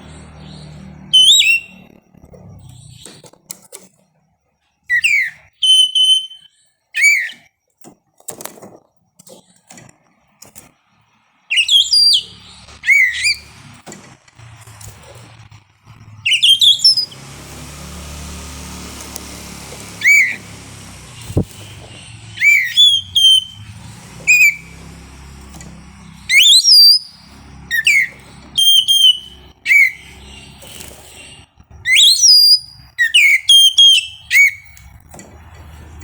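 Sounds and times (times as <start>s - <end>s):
bird singing whistled notes: 0.1s - 1.9s, 4.9s - 7.5s, 11.5s - 13.5s, 16.1s - 17.2s, 19.8s - 30.6s, 31.3s - 35.0s.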